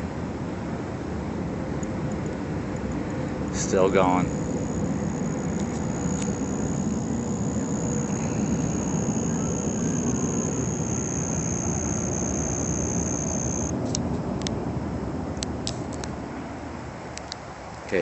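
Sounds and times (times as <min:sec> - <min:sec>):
thin high whine: 0:03.5 - 0:13.7.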